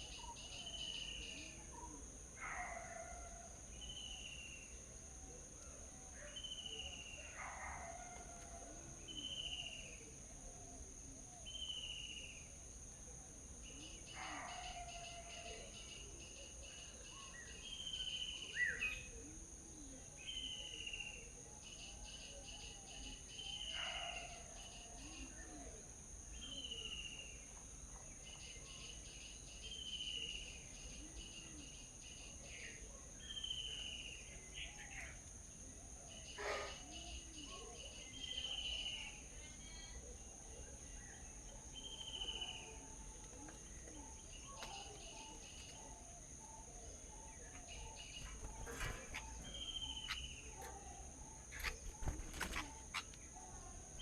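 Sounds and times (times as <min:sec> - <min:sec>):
birds chirping: 0:46.8 - 0:54.0.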